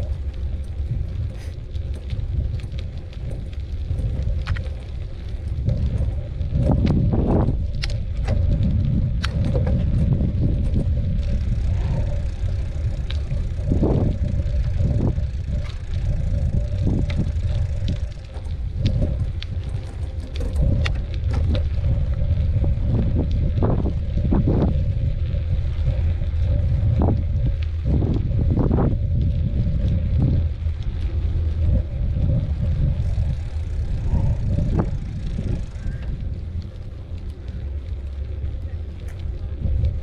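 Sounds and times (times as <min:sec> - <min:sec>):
bicycle rattling and knocking: 0:00.0 - 0:40.0
wind rumbling on microphone: 0:00.0 - 0:40.0.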